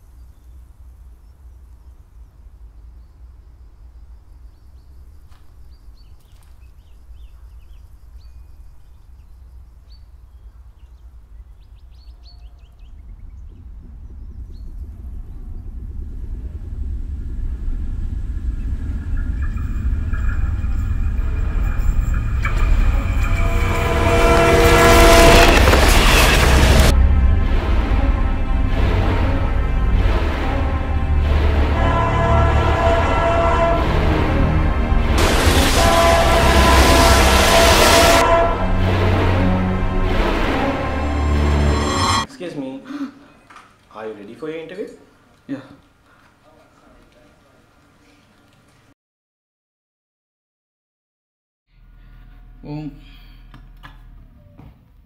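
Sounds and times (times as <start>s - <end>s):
train rumble: 6.6s - 42.3s
train horn blaring: 19.4s - 42.3s.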